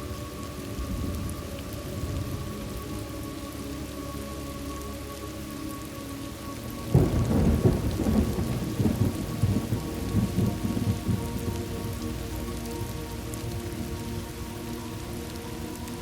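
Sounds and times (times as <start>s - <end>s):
steady rain: 0.0s - 16.0s
thunder clap rumbling: 6.9s - 12.1s.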